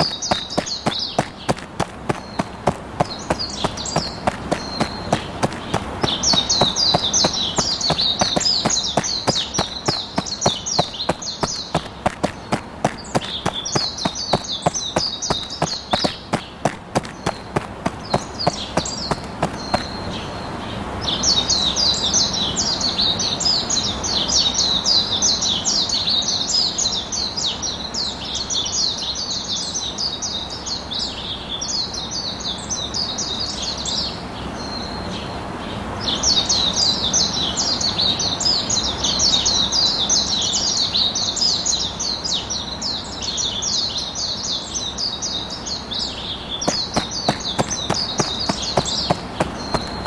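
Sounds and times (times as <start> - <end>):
birds chirping: 0.0 - 23.0, 43.2 - 50.0.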